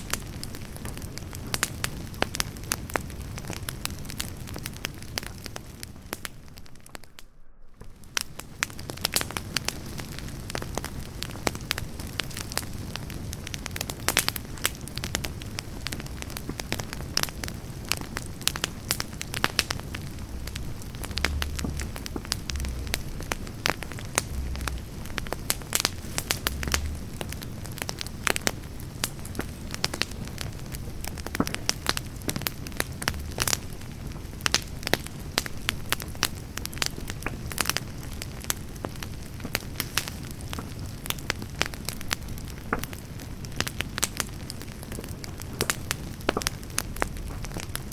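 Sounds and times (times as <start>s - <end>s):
firewood crackling and popping: 0.0s - 47.9s
fire hissing: 6.8s - 36.9s, 41.4s - 47.9s.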